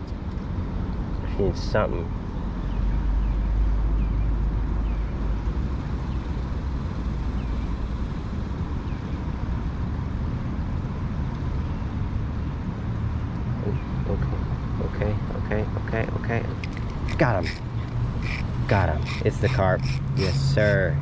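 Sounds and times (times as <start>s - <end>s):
faint short chirps: 17.1s - 20.8s.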